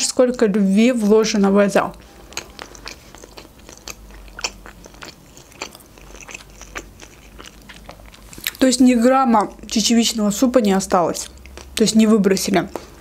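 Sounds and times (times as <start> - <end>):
mouth clicks and smacks: 1.9 - 8.7
person chewing bread: 1.9 - 9.8, 11.2 - 11.8.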